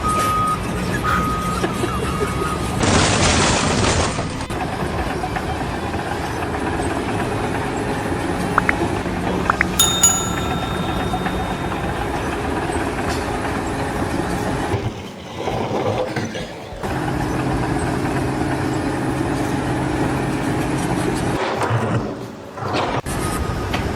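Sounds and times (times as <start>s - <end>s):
sharp ringing hit: 9.8s - 12.6s.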